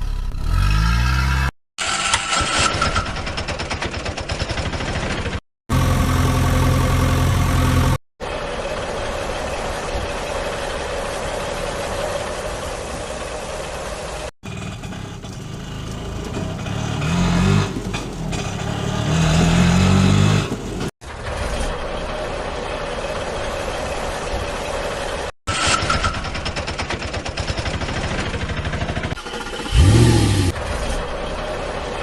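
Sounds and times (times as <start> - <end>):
vehicle engine running: 5.7 - 25.3, 27.4 - 32.0.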